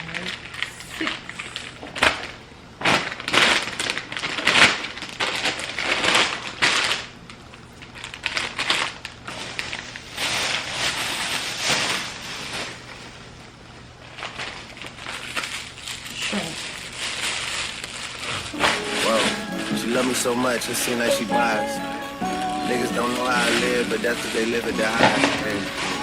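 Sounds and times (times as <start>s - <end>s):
plastic packaging crinkling: 1.4s - 18.6s.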